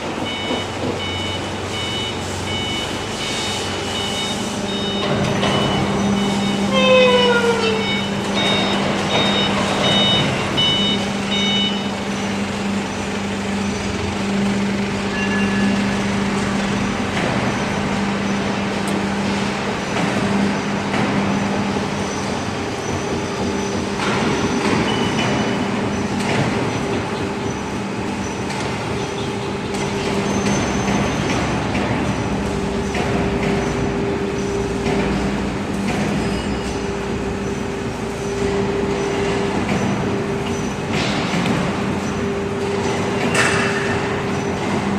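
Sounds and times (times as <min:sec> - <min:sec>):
hydraulic pump humming: 0:00.0 - 0:44.9
machine knocks: 0:04.8 - 0:06.4, 0:07.8 - 0:11.7, 0:22.8 - 0:27.1, 0:34.7 - 0:36.4.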